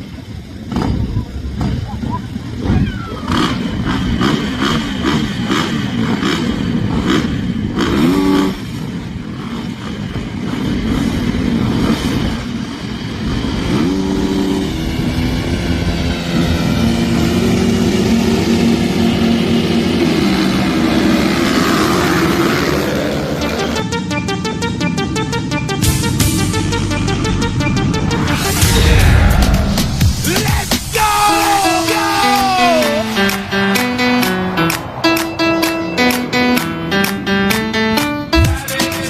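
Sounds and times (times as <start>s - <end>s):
motocross bike engines revving: 0.0s - 23.8s.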